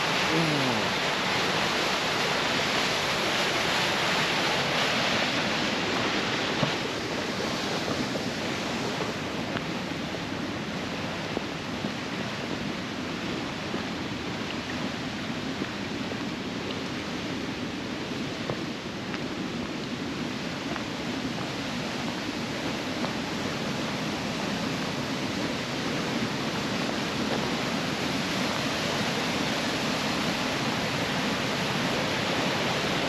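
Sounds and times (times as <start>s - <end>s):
waterfall roaring: 0.0s - 33.0s.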